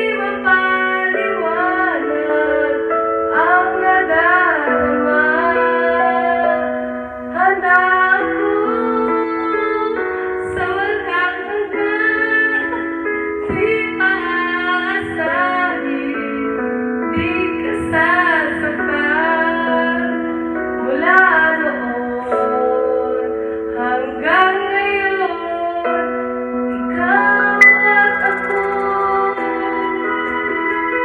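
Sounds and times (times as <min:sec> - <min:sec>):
woman singing: 0:00.0 - 0:31.0
sustained instrumental accompaniment: 0:27.6 - 0:29.6.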